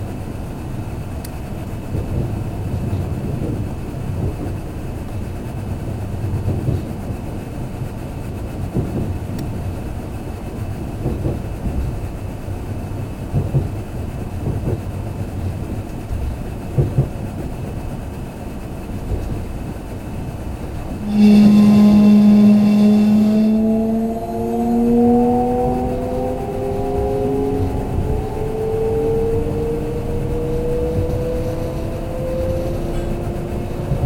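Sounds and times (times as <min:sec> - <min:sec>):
train rumbling: 0:00.0 - 0:34.0
electric motor whine: 0:21.0 - 0:28.6.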